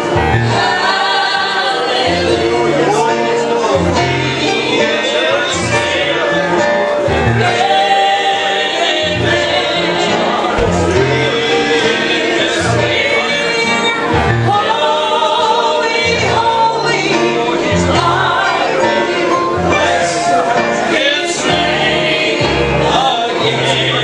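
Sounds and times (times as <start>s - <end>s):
instruments with bass line: 0.0s - 1.0s, 5.6s - 7.8s, 9.1s - 14.6s
gospel group singing: 0.0s - 24.0s.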